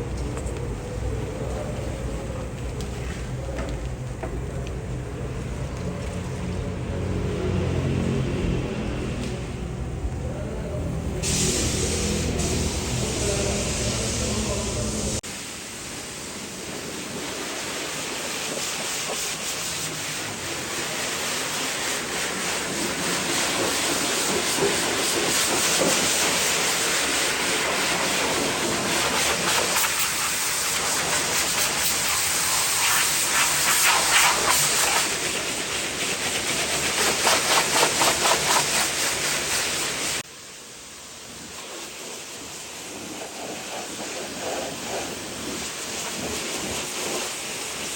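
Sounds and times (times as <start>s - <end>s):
pressure washer spraying: 10.7s - 40.3s, 41.4s - 47.9s.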